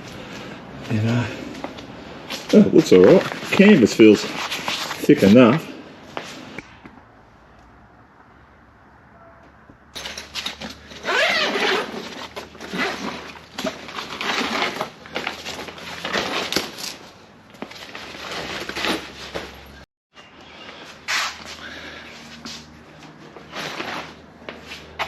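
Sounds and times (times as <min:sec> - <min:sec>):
heavy canvas rustling: 0:10.3 - 0:19.8.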